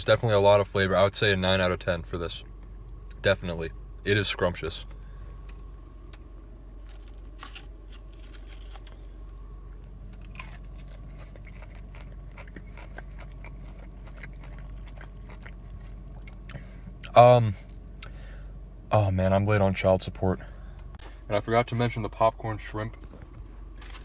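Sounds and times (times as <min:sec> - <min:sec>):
steady low hum: 0:00.0 - 0:24.0
chewing and crunching: 0:04.8 - 0:18.2, 0:22.9 - 0:24.0.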